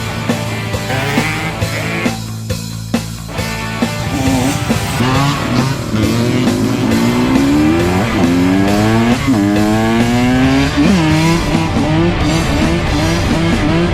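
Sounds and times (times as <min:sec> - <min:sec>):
rock music with guitar: 0:03.4 - 0:06.8.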